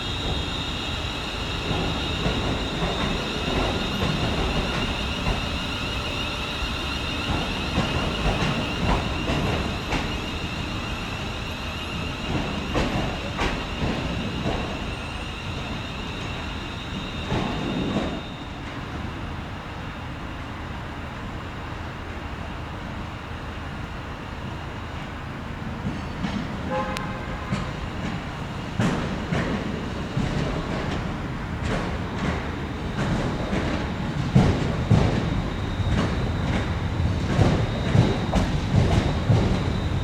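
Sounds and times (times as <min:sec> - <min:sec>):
steady high-pitched train tone: 0:00.0 - 0:40.0
train wheels clicking over rail joints: 0:27.4 - 0:40.0.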